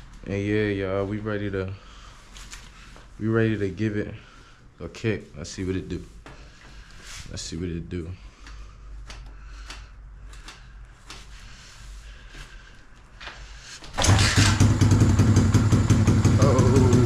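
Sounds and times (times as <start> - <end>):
dirt bike engine running: 14.0 - 17.0.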